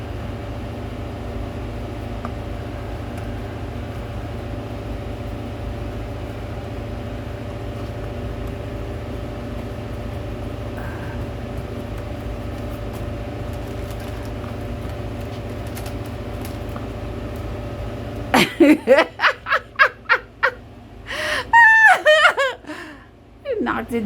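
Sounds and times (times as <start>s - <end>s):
steady machine hum: 0.0s - 24.0s
woman laughing rhythmically: 18.4s - 23.0s.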